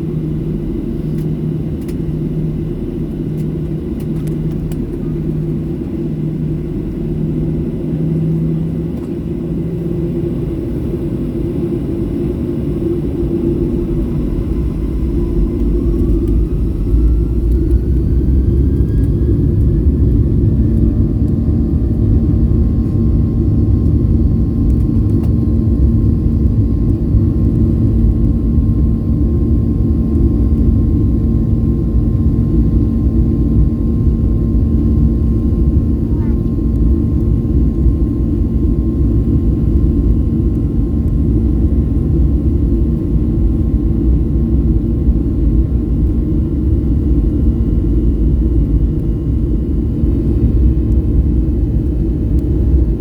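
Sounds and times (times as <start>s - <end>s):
deep rumble: 0.0s - 53.0s
rising engine whine: 0.1s - 40.6s
jet engines spooling up: 13.1s - 22.5s.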